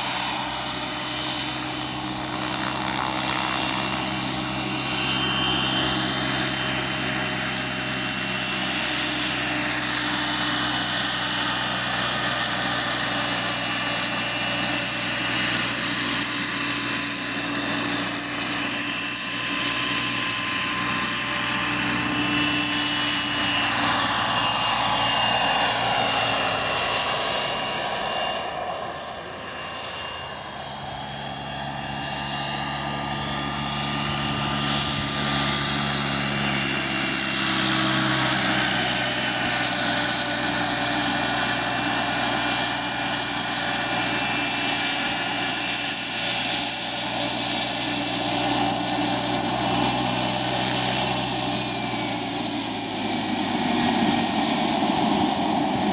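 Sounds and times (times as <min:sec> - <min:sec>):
helicopter rotor beat: 0:00.0 - 0:55.9
turbine whine: 0:00.0 - 0:55.9.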